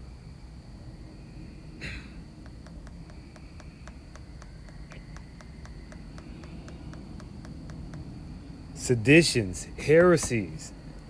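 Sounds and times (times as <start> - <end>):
low background rumble: 0.0 - 11.0
steady ticking: 2.3 - 8.9.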